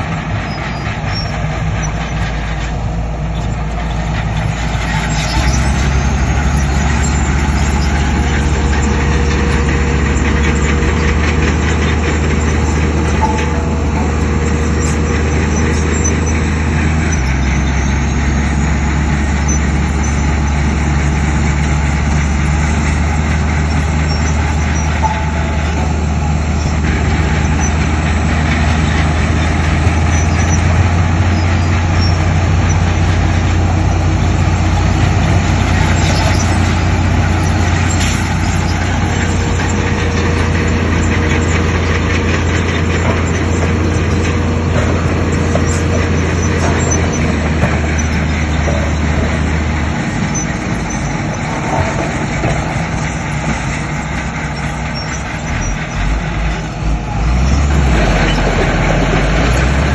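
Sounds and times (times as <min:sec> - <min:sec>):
heavy diesel engines under load: 0:00.0 - 0:59.9.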